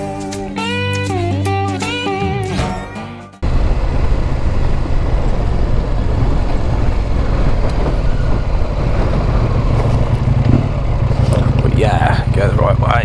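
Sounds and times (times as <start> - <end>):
motorcycle engine running: 3.4 - 13.0
wind and road noise: 3.4 - 13.0.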